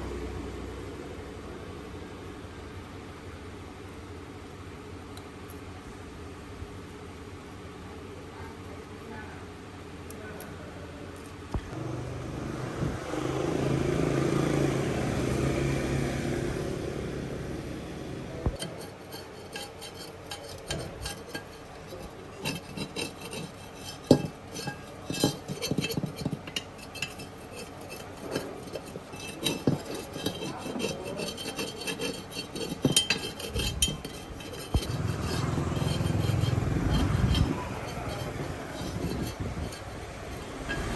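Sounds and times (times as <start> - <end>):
engine hum: 11.7 - 19.6, 23.4 - 40.9
hand tools scraping on wheel rim: 18.4 - 40.9
metal clicks and clinks: 22.4 - 39.9.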